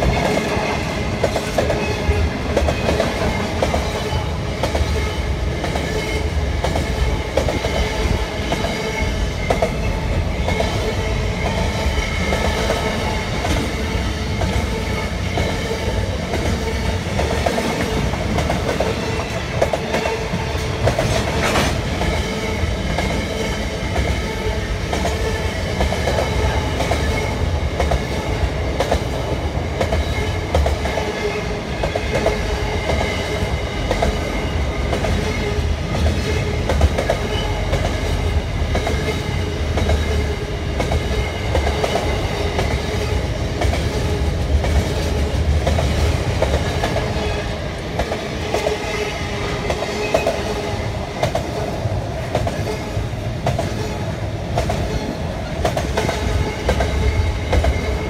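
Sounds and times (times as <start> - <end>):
train clank: 0.0 - 24.2
freight train rumble: 0.0 - 58.0.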